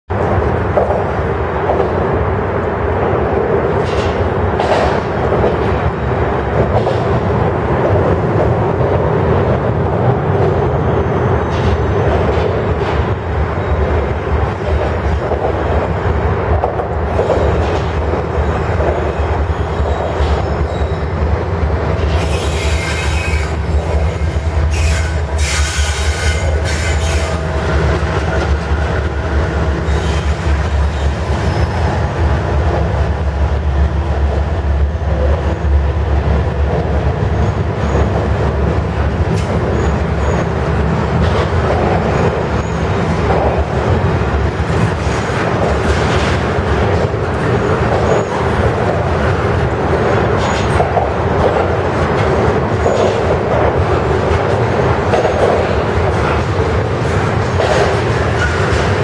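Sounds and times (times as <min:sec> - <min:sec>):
freight train rumble: 0:00.1 - 0:59.0
wheel squeal on rails: 0:22.1 - 0:27.5.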